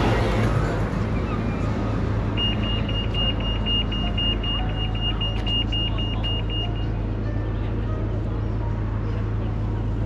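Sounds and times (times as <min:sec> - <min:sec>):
road traffic hum: 0:00.0 - 0:10.0.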